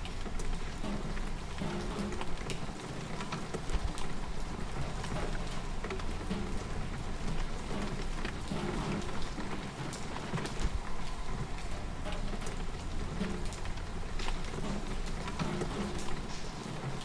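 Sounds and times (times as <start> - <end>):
rain drops pattering: 0.0 - 17.0.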